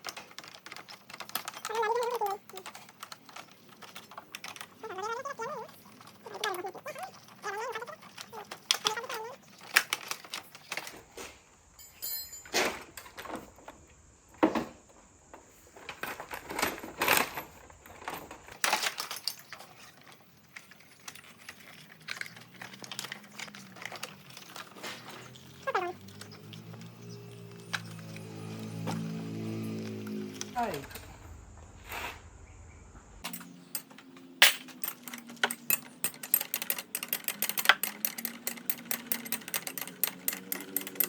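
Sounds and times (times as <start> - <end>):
hand tools clanking on metal: 33.2 - 41.0.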